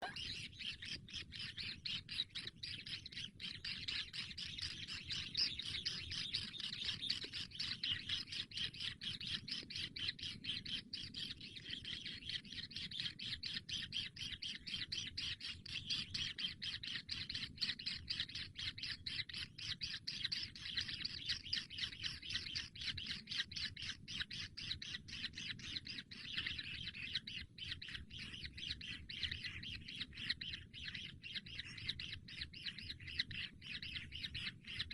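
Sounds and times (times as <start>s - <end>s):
chicks begging chirps: 23.8s - 34.9s.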